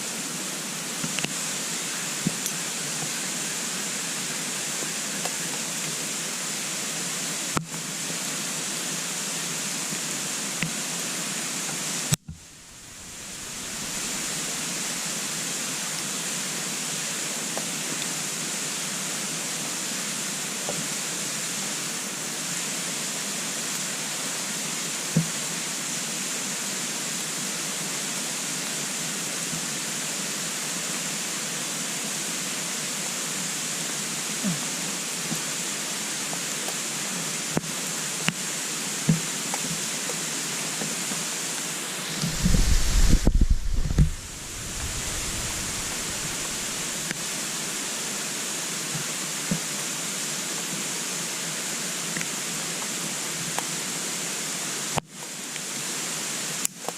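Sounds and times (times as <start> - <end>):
wood stove fire hissing: 0.0 - 56.9
fire crackling pops: 12.2 - 15.3, 42.2 - 47.2.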